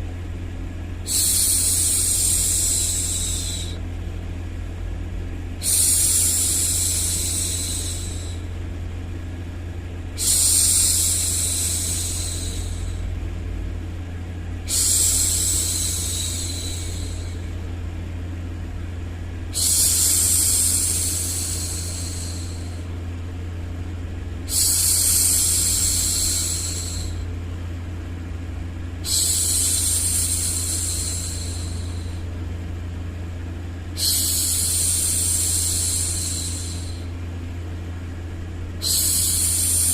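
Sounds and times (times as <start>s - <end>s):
low white-noise rumble: 0.0s - 39.9s
woman shushing: 1.1s - 3.8s, 14.7s - 17.4s, 34.0s - 37.1s, 38.8s - 39.9s.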